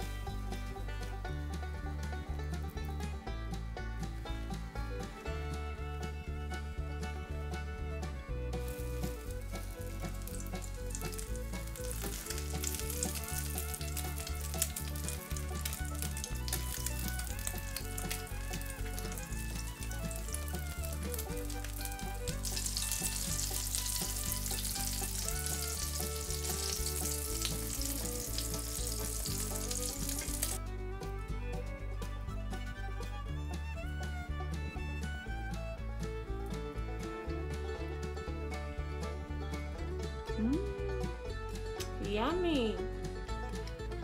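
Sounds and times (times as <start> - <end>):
background music: 0.0 - 44.0
chicken sizzling in hot oil: 8.6 - 30.6.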